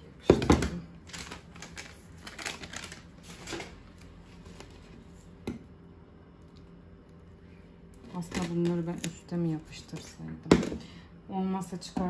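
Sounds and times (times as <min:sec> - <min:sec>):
plastic containers clicking and rustling: 0:00.3 - 0:03.8.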